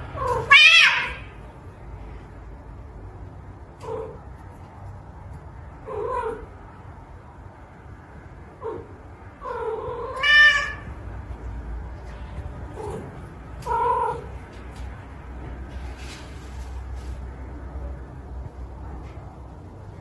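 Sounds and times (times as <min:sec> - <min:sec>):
cat meowing: 0:00.2 - 0:01.3, 0:08.6 - 0:11.0.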